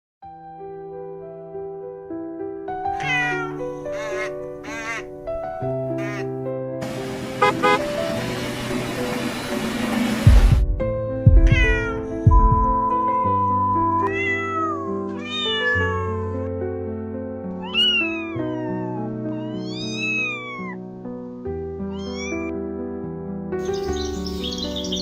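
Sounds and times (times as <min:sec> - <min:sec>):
background music with held notes: 0:00.3 - 0:25.0
cat meowing: 0:02.9 - 0:05.2, 0:05.8 - 0:06.3, 0:11.4 - 0:12.1, 0:14.1 - 0:16.4, 0:17.6 - 0:20.8, 0:21.9 - 0:22.5.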